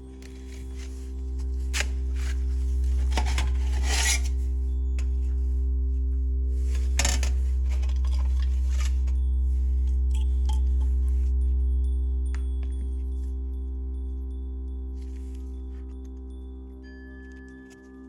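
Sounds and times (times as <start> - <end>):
low motor-like hum: 0.0 - 18.0
metal scraping and clinking: 1.6 - 5.2, 6.6 - 9.3.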